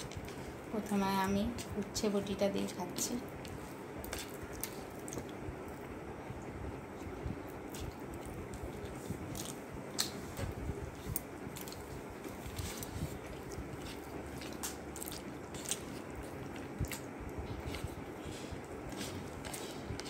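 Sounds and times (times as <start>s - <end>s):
person chewing wetly: 3.4s - 5.9s, 7.5s - 20.0s.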